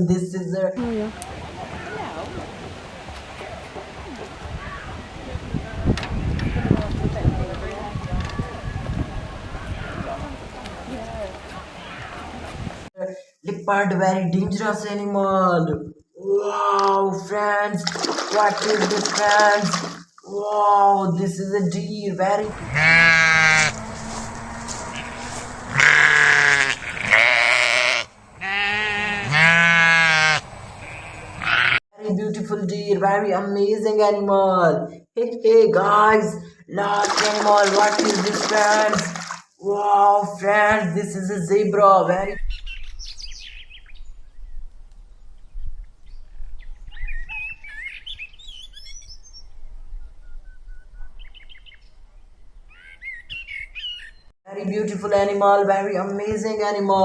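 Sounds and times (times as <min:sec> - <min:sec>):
animal bleating: 0:06.3 - 0:06.8, 0:22.6 - 0:31.8
small birds chirping: 0:42.3 - 0:54.3.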